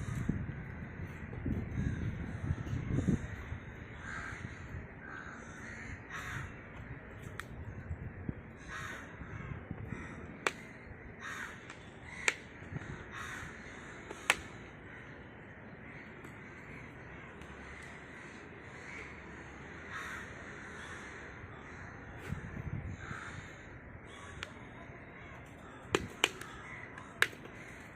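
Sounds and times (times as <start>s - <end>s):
crows cawing: 0.0s - 7.0s, 8.0s - 27.9s.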